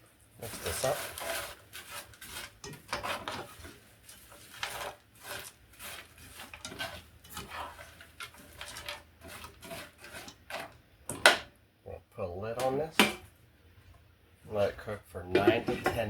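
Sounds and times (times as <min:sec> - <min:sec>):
utensil scraping a pan: 0:00.0 - 0:11.5, 0:15.3 - 0:16.0.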